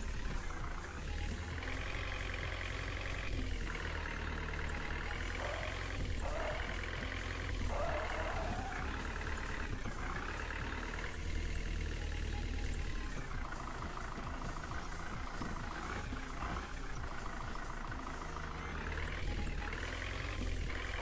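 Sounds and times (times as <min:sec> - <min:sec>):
tractor engine rumbling: 0:00.0 - 0:21.0.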